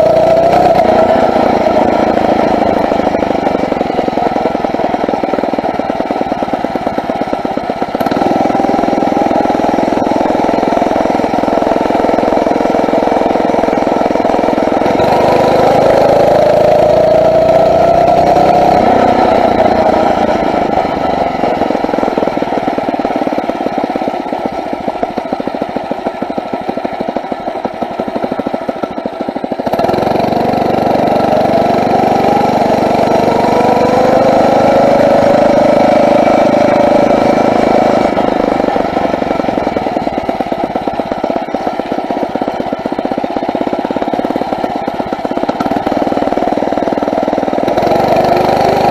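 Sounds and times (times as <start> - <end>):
motorized bicycle engine running: 0.0 - 48.9.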